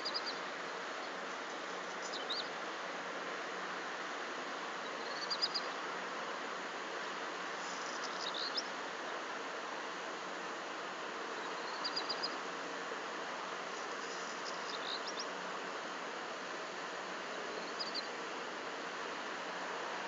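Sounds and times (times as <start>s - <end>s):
small bird chirping: 0.0s - 1.1s, 1.9s - 2.6s, 4.8s - 5.7s, 7.8s - 8.7s, 11.4s - 12.4s, 14.0s - 15.3s, 17.5s - 18.1s
steady background hiss: 0.0s - 20.0s.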